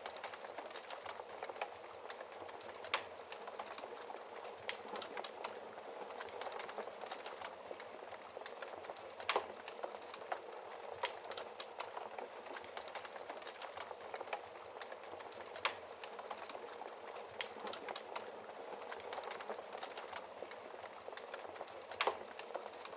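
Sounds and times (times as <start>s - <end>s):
wood fire crackling: 0.0s - 22.9s
loud fire snaps: 8.4s - 20.6s, 21.2s - 22.9s.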